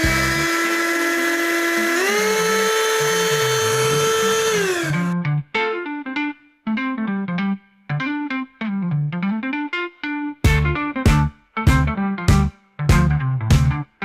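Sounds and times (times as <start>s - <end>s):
handheld vacuum motor whine: 0.0s - 5.2s.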